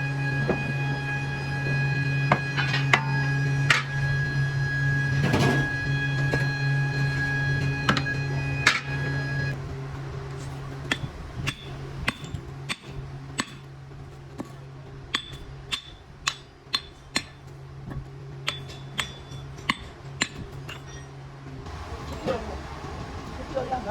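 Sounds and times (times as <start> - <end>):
low machine hum: 0.0 - 23.9
metal clinking on metal: 2.3 - 4.2, 14.3 - 21.2.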